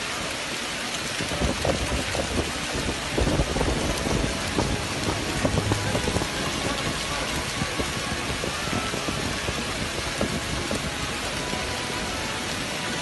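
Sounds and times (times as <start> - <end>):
heavy rain pouring: 0.0 - 13.0
low thuds and rumbles: 1.4 - 11.1.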